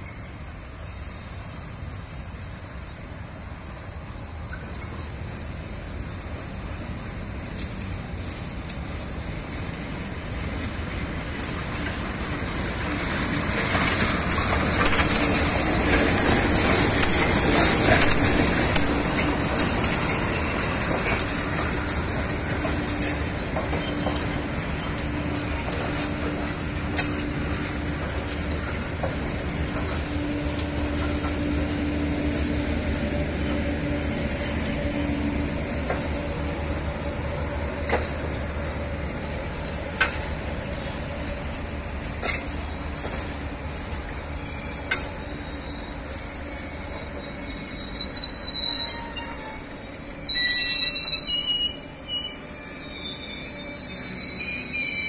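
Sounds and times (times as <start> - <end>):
train coaches rumbling: 0.0 - 55.0
brakes and wheels squealing: 11.8 - 55.0.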